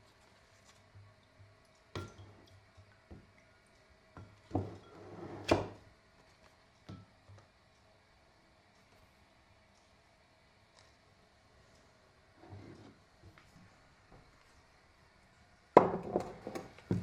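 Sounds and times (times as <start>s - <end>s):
rustling and scraping: 12.4s - 13.0s.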